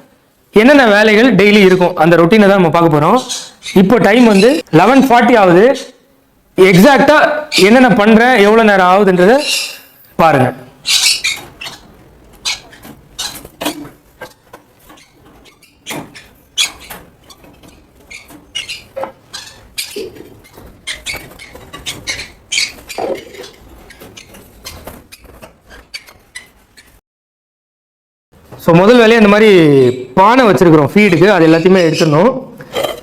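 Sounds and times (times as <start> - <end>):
birds scratching in wire cages: 10.8 - 27.0.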